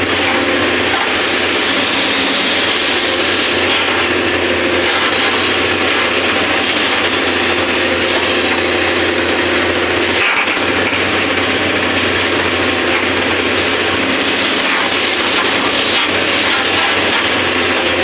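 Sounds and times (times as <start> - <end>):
excavator working: 0.0 - 18.0.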